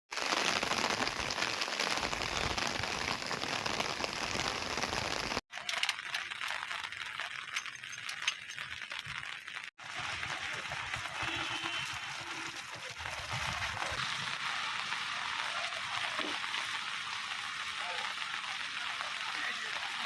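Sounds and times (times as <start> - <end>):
heavy rain falling: 0.1 - 5.4, 9.8 - 20.0.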